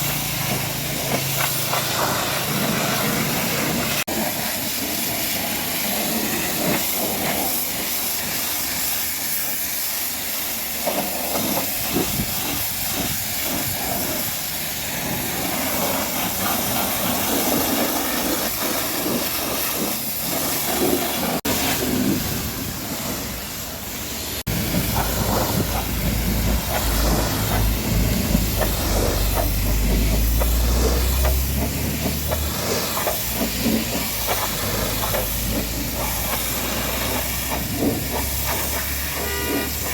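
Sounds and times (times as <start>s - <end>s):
high-pressure water spray hissing: 0.0s - 39.9s.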